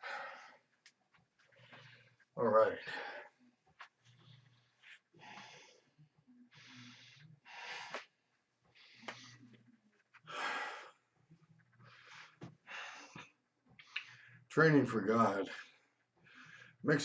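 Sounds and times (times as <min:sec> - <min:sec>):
person breathing hard: 0:00.0 - 0:00.7, 0:04.1 - 0:08.1, 0:10.2 - 0:11.0, 0:11.8 - 0:14.5.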